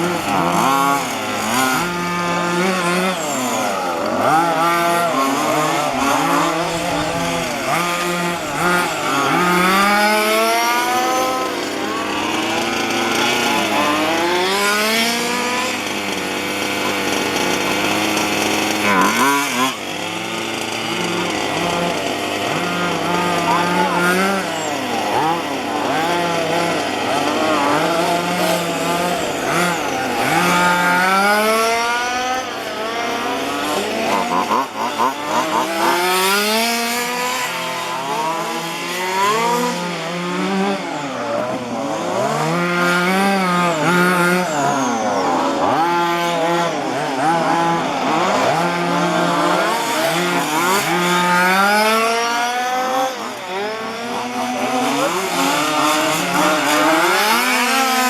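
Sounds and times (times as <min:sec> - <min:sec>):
rc car engines revving: 0:00.0 - 0:58.0.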